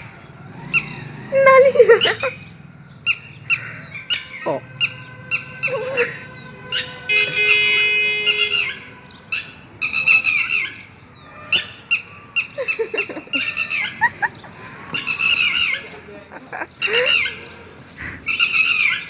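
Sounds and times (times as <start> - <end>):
bird squawking: 3.0 - 16.0, 16.8 - 17.6, 18.3 - 19.0.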